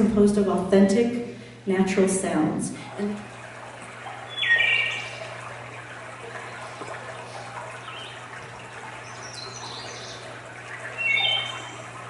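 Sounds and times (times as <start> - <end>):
running water rushing: 2.7 - 12.0
high bird chirps: 4.3 - 5.2, 10.8 - 11.8.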